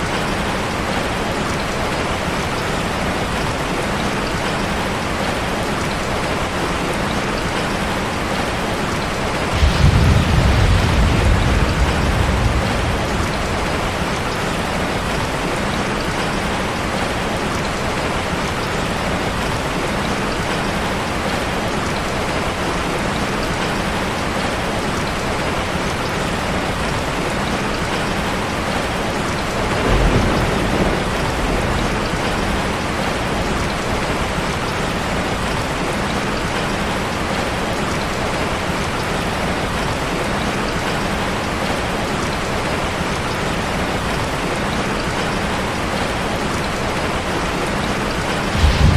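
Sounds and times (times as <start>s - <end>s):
steady rain: 0.0s - 48.9s
thunder rumbling: 9.2s - 17.0s, 29.4s - 35.5s, 47.8s - 48.9s.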